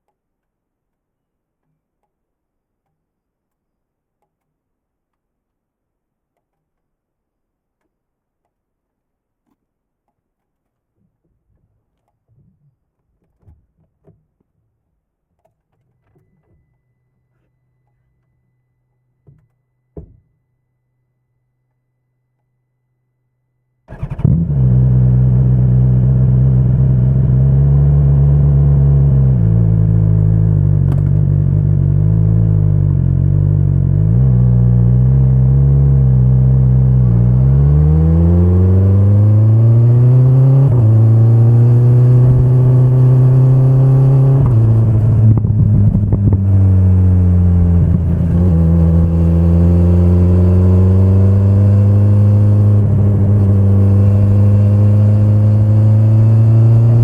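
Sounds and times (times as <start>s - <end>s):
motorcycle engine revving: 23.9s - 57.0s.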